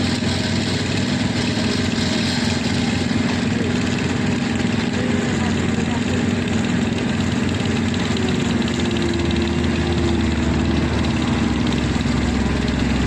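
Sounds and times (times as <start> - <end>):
diesel machinery engine running: 0.0 - 13.0.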